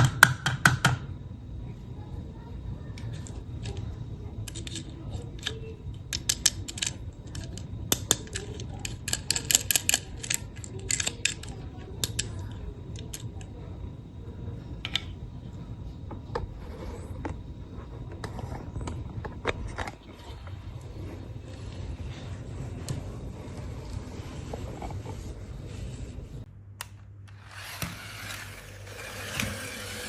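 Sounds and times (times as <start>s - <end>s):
plastic toy cars clicking: 2.9s - 13.5s.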